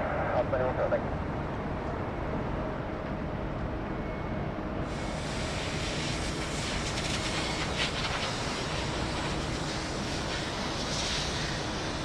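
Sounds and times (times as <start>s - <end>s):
jet engines rumbling: 0.0s - 12.0s
jet engine hiss: 4.8s - 12.0s.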